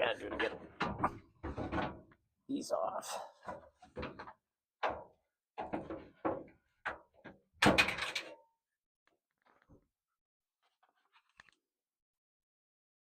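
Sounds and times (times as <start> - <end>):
sheet metal knocking and clanking: 0.2 - 2.1.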